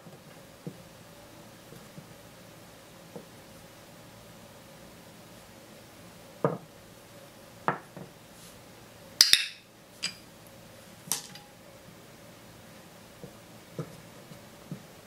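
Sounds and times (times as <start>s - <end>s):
small objects clinking on table: 9.2s - 10.2s, 11.1s - 11.5s.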